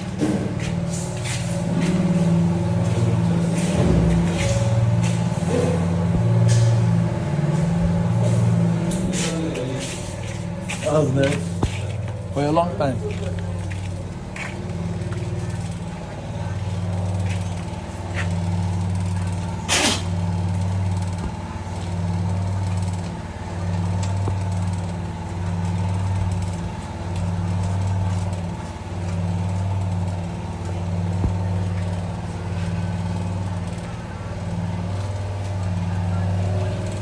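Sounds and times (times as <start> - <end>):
portable generator engine humming: 0.0 - 37.0
sharp metallic clank: 19.7 - 20.2.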